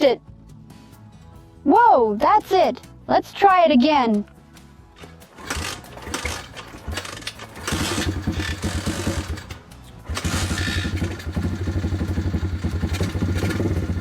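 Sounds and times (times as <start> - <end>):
small motorcycle engine running: 5.3 - 14.0.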